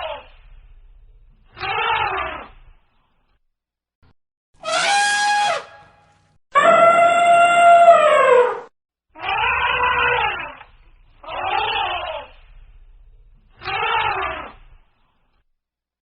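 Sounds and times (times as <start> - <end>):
animal calls: 4.6 - 5.9, 6.6 - 12.5, 13.5 - 14.7.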